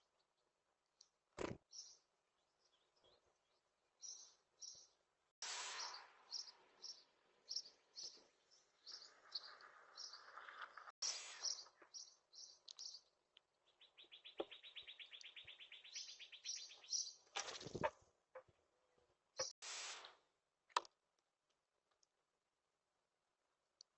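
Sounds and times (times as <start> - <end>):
songbirds chirping: 0.0 - 19.6
bird trill: 11.0 - 17.9.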